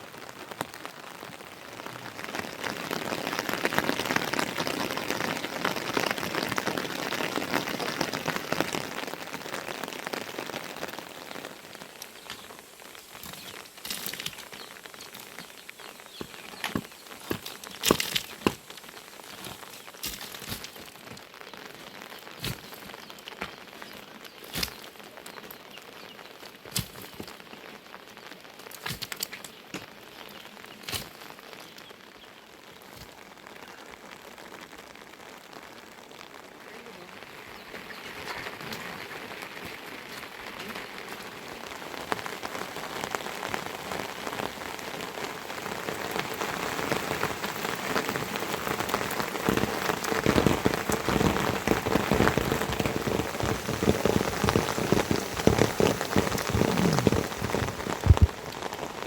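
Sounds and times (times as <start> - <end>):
heavy raindrops striking surface: 0.0 - 59.0
rainfall: 0.0 - 59.0.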